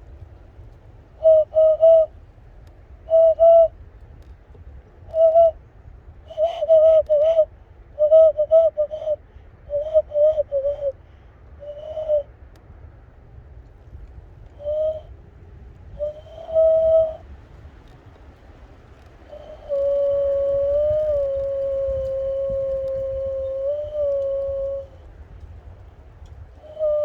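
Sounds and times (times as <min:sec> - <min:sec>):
hand whistle hooting notes: 0:01.2 - 0:02.1, 0:03.0 - 0:03.8, 0:05.1 - 0:05.6, 0:06.3 - 0:11.0, 0:11.6 - 0:12.3, 0:14.6 - 0:15.1, 0:15.9 - 0:17.2, 0:19.2 - 0:25.1, 0:26.6 - 0:27.0.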